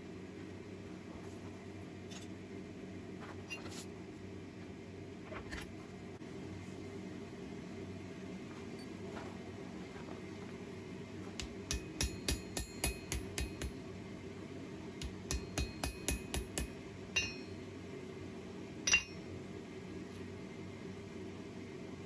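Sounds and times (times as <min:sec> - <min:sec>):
hammer ringing on anvil: 0:11.4 - 0:13.8, 0:15.0 - 0:17.6, 0:18.9 - 0:19.2.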